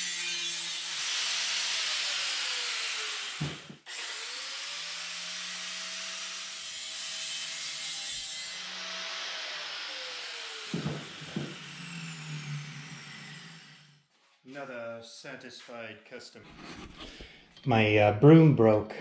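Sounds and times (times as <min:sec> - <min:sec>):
power saw cutting steel: 0:00.0 - 0:14.2
thump: 0:03.4 - 0:03.8, 0:10.7 - 0:11.6.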